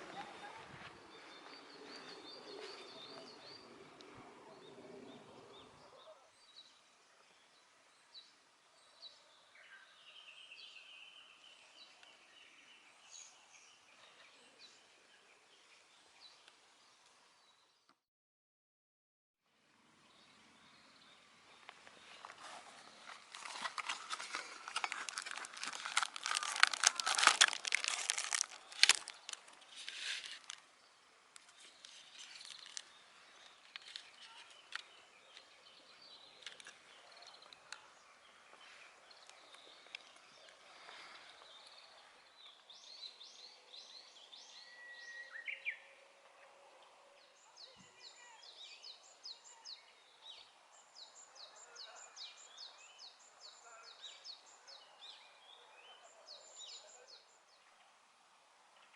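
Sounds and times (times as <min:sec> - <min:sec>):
bird chirping: 0:00.0 - 0:17.9, 0:20.0 - 0:58.0
open-air ambience: 0:00.0 - 0:18.0, 0:19.4 - 0:58.9
crinkling handling noise: 0:21.6 - 0:35.6, 0:36.3 - 0:41.8.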